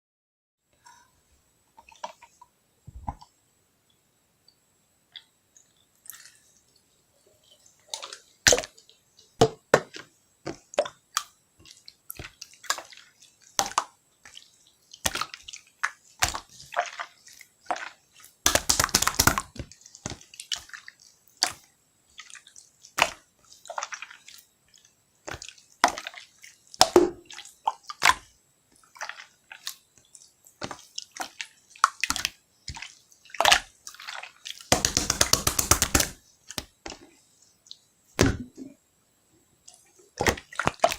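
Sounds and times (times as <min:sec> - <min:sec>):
wet pops and clicks: 0:18.5 - 0:20.2, 0:34.7 - 0:37.0.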